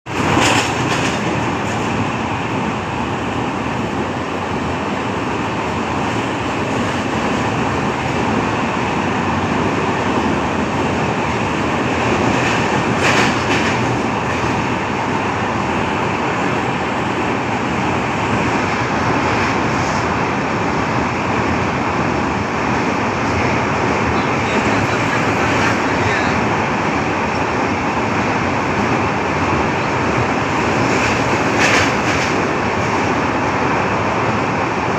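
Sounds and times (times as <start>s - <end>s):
train wheels rumbling and rattling: 0.0s - 34.9s
train wheels clattering: 0.1s - 2.0s, 12.2s - 14.7s, 30.6s - 33.1s.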